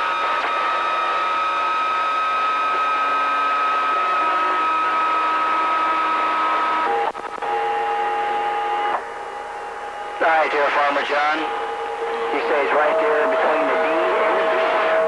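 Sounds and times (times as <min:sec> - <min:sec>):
radio static: 0:10.2 - 0:15.0
radio whistling tones: 0:10.2 - 0:15.0.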